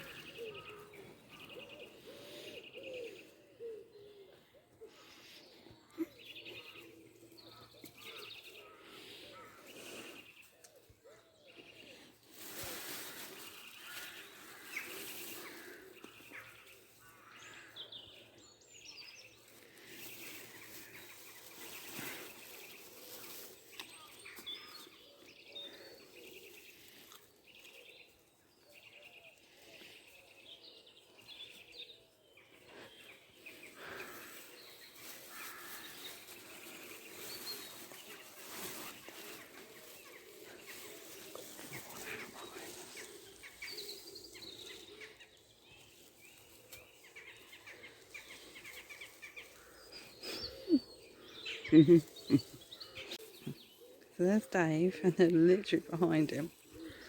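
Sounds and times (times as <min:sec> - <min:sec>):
small birds chirping: 0:00.0 - 0:57.0
soft rustling: 0:12.0 - 0:17.6, 0:19.4 - 0:25.0, 0:33.2 - 0:50.9.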